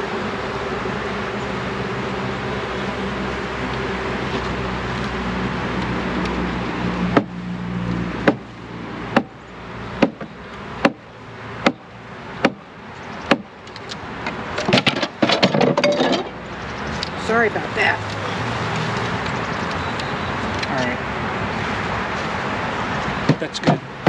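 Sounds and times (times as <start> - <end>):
sharp knocks on wooden box: 8.2 - 8.4, 9.1 - 9.3, 10.0 - 11.0, 12.4 - 12.6, 13.3 - 13.5.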